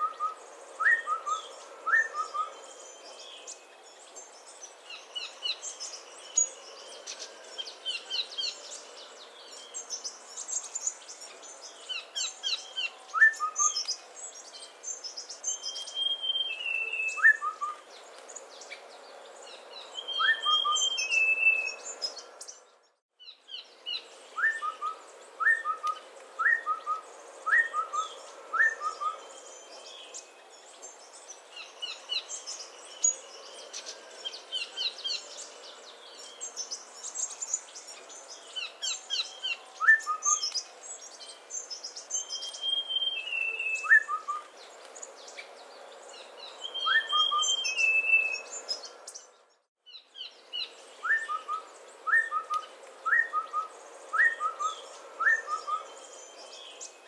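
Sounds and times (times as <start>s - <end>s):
long falling bird whistle: 0.0s - 2.9s, 12.2s - 13.9s, 15.5s - 17.8s, 20.0s - 21.8s, 24.3s - 29.9s, 38.6s - 40.6s, 42.2s - 44.5s, 46.6s - 48.4s, 51.0s - 56.0s
birds chirping: 0.0s - 57.0s.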